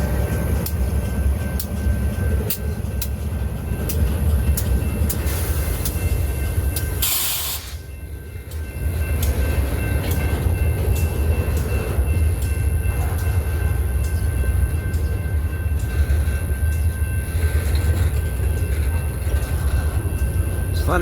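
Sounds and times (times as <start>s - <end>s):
freight train rumbling past: 0.0s - 21.0s
burst of hiss: 7.0s - 7.8s.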